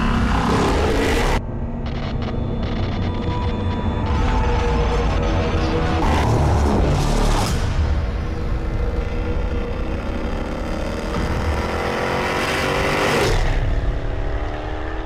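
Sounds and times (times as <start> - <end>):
car engine accelerating: 3.6 - 15.0.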